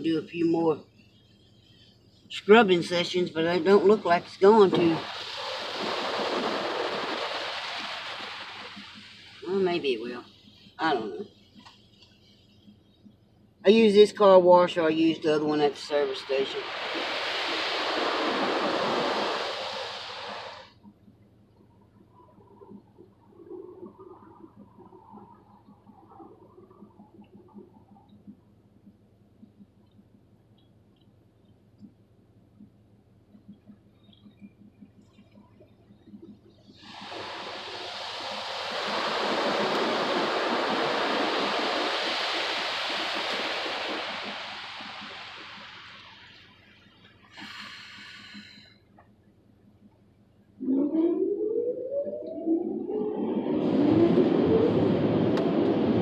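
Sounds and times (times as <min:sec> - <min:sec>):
car wash water spray pounding: 0:02.4 - 0:12.0, 0:14.6 - 0:20.8, 0:36.2 - 0:48.6
water gurgling and dripping: 0:02.4 - 0:13.2, 0:14.8 - 0:48.8, 0:49.8 - 0:56.0.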